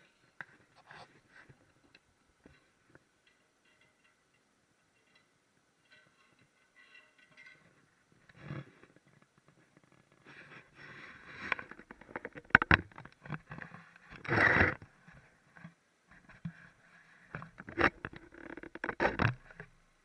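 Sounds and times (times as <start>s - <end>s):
handling toilet tank parts: 0.4s - 10.7s.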